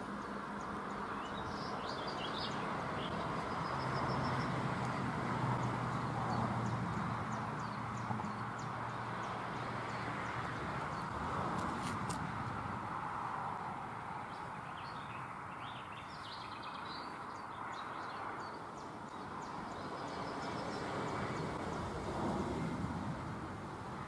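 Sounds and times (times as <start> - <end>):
small birds chirping: 0.0 - 11.2, 14.1 - 21.9
rushing outdoor background noise: 0.0 - 24.0.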